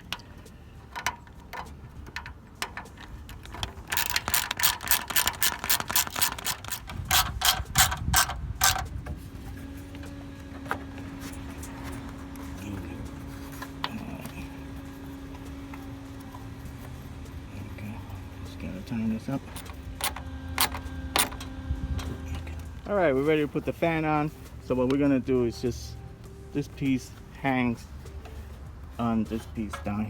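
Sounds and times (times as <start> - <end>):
ratchet clicking: 0.0 - 8.9, 19.3 - 22.7
steady low hum: 0.0 - 30.0.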